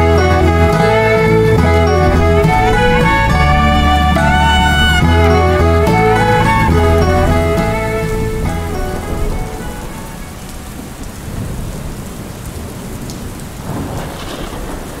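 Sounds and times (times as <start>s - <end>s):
background music: 0.0s - 11.0s
steady rain: 0.0s - 15.0s
thunder rumble: 0.0s - 15.0s.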